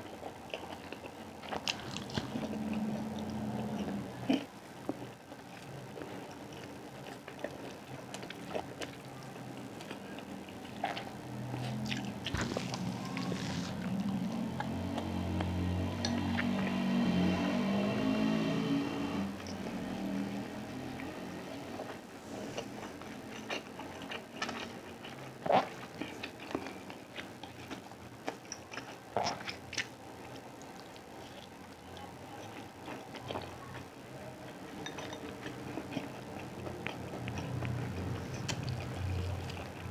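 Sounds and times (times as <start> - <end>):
person chewing food: 0.0 - 16.6, 21.7 - 39.9
low steady hum: 0.0 - 39.9
person chewing and biting food: 0.1 - 5.1, 9.8 - 15.5, 34.9 - 39.9.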